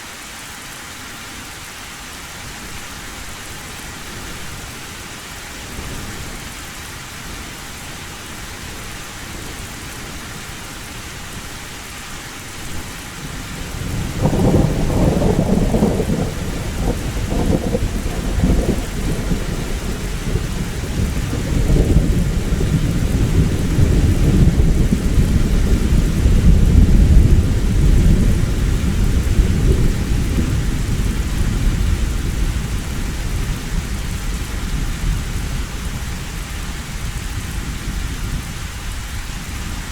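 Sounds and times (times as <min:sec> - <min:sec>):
heavy rain: 0:00.0 - 0:39.9
low rumble of thunder: 0:12.8 - 0:39.9.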